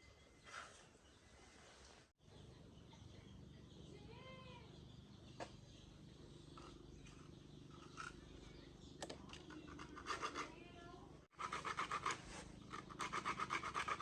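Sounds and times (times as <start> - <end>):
faint low hum: 1.1 - 11.6.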